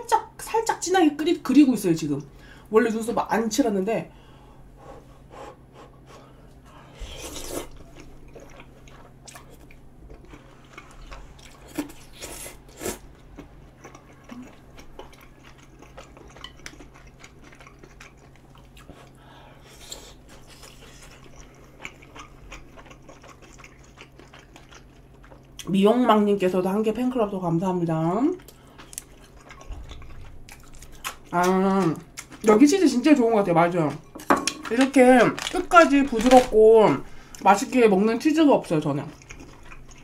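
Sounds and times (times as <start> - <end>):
close chewing with wet smacks: 7.4 - 25.8, 28.3 - 32.8, 38.6 - 40.0.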